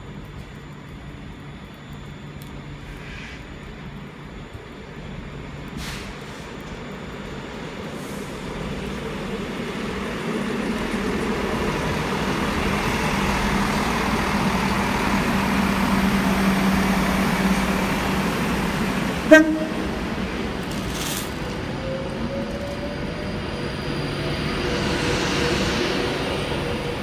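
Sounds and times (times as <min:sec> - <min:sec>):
train running noise: 0:00.0 - 0:27.0
train horn toot: 0:19.2 - 0:20.1.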